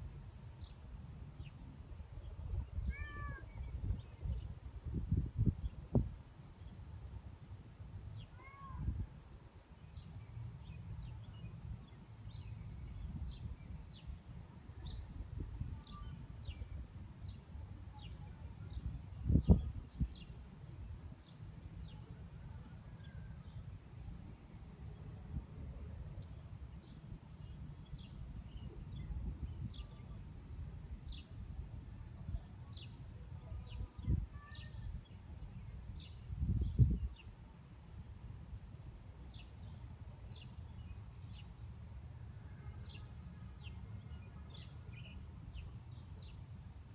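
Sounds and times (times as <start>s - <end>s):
small birds chirping: 15.8s - 20.5s.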